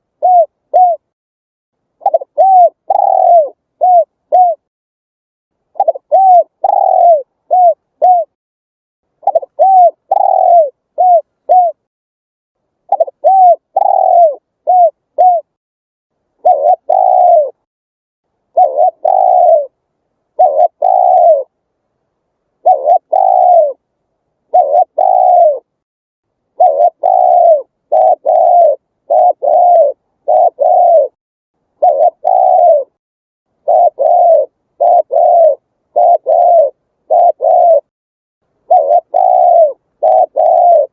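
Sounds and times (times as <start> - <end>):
dove cooing: 0.0 - 1.1, 2.0 - 4.7, 5.8 - 8.4, 9.2 - 11.9, 12.9 - 15.6, 16.4 - 17.6, 18.5 - 21.6, 22.6 - 23.8, 24.5 - 25.7, 26.5 - 31.2, 31.8 - 33.0, 33.6 - 37.9, 38.7 - 40.9.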